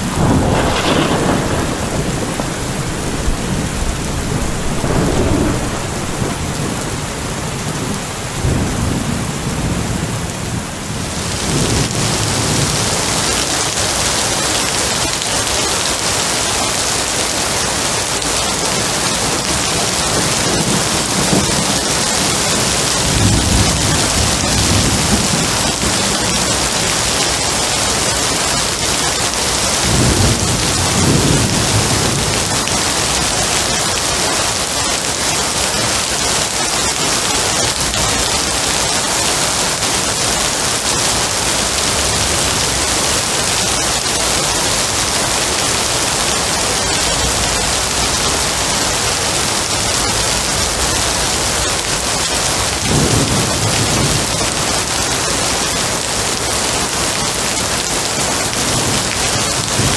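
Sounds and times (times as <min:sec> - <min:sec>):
low rolling thunder: 0:00.0 - 0:14.2, 0:19.4 - 0:27.9, 0:28.7 - 0:34.2, 0:46.4 - 0:55.2
heavy rain hissing: 0:00.0 - 0:59.9.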